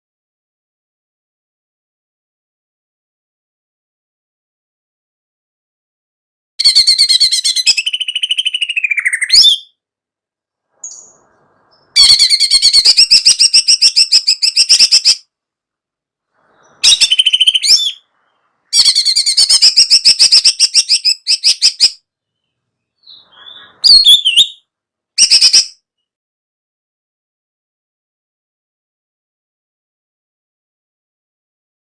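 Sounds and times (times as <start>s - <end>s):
bulbul chattering song: 10.8s - 15.2s, 16.6s - 18.1s, 18.7s - 22.0s, 23.0s - 24.6s.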